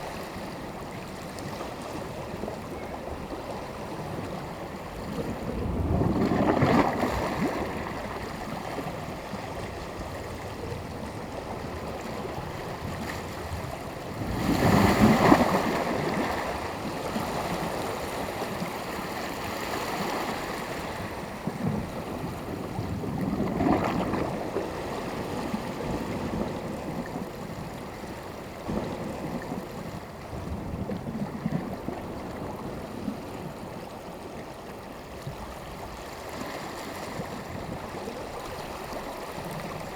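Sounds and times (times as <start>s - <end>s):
small waves breaking on shore: 0.0s - 39.9s
surf washing: 0.0s - 39.9s.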